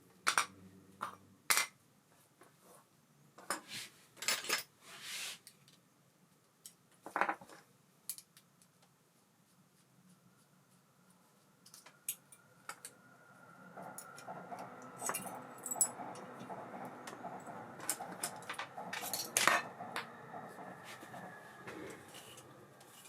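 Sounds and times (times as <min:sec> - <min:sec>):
metal parts and tools clinking: 0:04.2 - 0:04.7, 0:15.0 - 0:16.4, 0:17.8 - 0:19.7.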